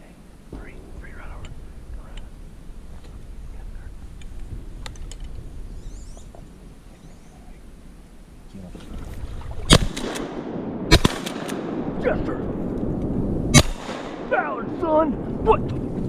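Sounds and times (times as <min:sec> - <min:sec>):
water rumbling and sloshing: 0:00.0 - 0:10.9
faint clicks: 0:04.2 - 0:05.4
loud shotgun blast: 0:09.7 - 0:12.6, 0:13.3 - 0:14.6.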